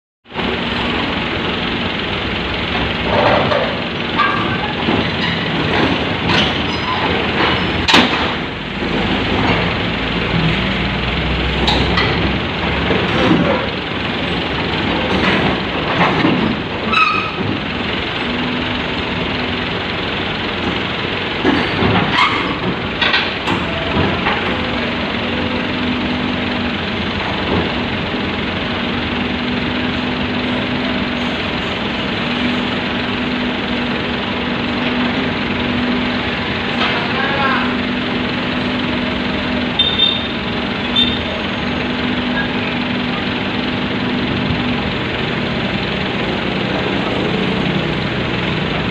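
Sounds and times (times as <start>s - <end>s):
excavator running under load: 0.3s - 48.9s
metal clanks and knocks: 2.8s - 9.8s, 14.9s - 17.7s, 20.6s - 24.7s.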